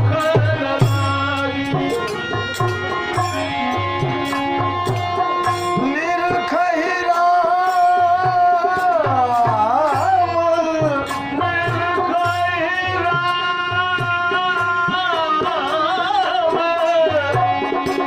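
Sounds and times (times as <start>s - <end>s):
held accompaniment notes: 0.0s - 18.0s
person singing devotional folk song: 0.0s - 18.0s
tabla strokes: 0.0s - 18.0s.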